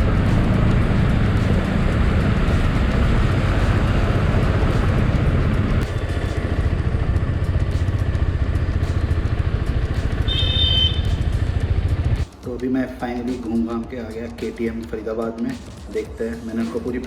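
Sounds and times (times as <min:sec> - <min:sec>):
motorcycle engine running: 0:00.0 - 0:12.4
road and wind noise: 0:00.0 - 0:14.6.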